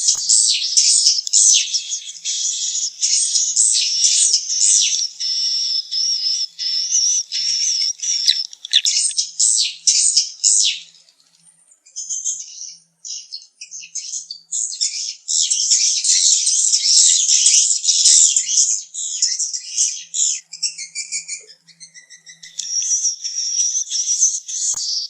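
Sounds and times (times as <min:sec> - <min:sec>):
swiftlets twittering: 0:00.0 - 0:09.2.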